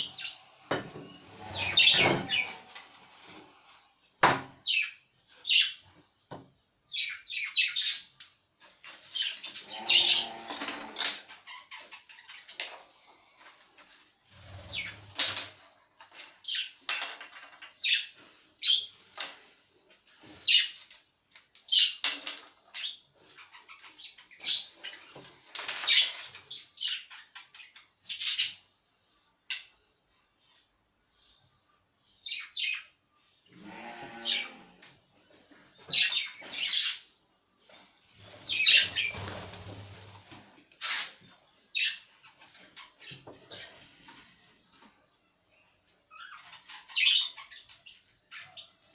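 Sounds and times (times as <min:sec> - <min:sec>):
budgerigars chirping: 0:46.1 - 0:48.7.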